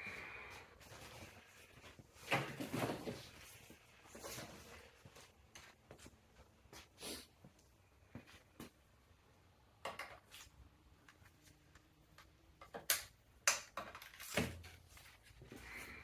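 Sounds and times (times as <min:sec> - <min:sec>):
clicks and knocks of objects handled: 0:09.8 - 0:15.6.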